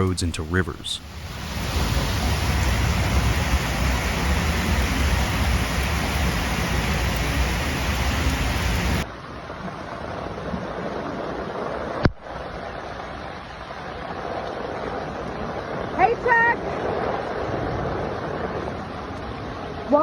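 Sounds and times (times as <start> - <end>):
low rumble: 0.0 - 9.0
torrential rain pouring: 0.0 - 20.0.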